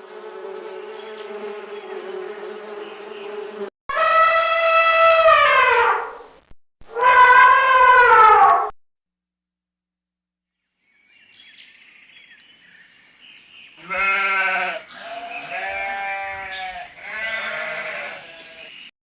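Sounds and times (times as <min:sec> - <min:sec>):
sheep bleating: 0:13.8 - 0:18.7.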